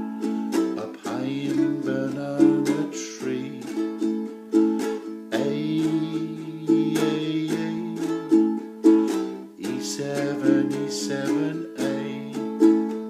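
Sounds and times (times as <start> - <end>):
ukulele strummed: 0.0 - 13.0.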